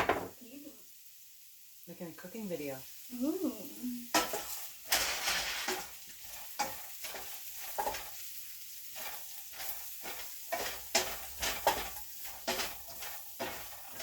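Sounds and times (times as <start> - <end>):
food sizzling: 0.0 - 14.0
spatula scraping a pan: 4.1 - 14.0.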